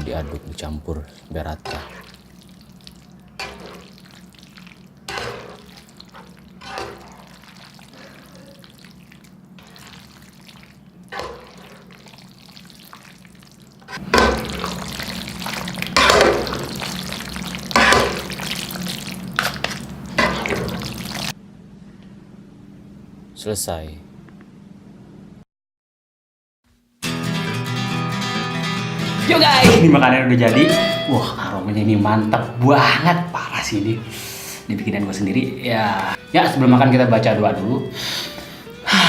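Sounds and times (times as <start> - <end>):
pasta stirred in sauce: 1.3 - 21.3.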